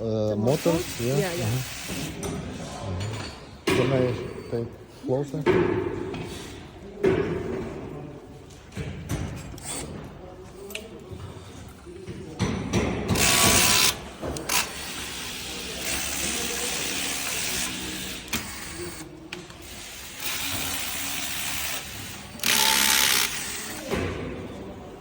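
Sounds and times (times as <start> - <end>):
hand tools working on parts: 0.3 - 2.5, 9.1 - 11.8, 12.4 - 24.6.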